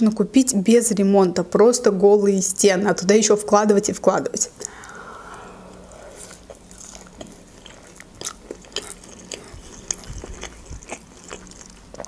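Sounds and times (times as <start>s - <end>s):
wet chewing clicks and smacks: 7.6s - 12.0s.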